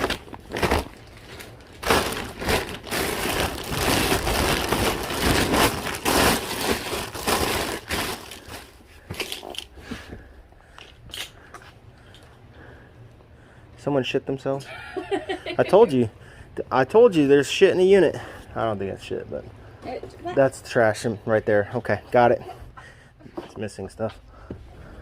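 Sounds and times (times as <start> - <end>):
bags and packaging rustling: 0.0 - 11.8.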